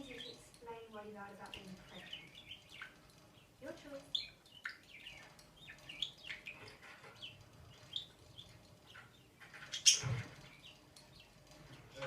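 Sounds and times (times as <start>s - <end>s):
budgerigar chirping: 2.0s - 3.5s, 4.1s - 9.0s.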